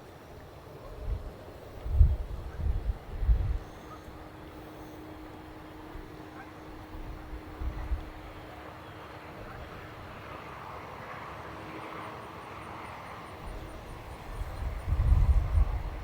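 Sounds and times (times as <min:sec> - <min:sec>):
distant airplane passing: 0:00.0 - 0:16.0.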